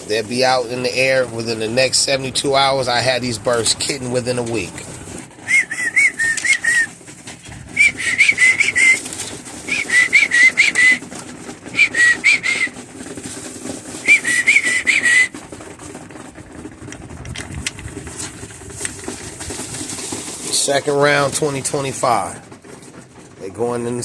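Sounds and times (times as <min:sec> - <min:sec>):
low steady rumble: 0:00.0 - 0:24.0
young pigeons peeping: 0:00.0 - 0:24.0.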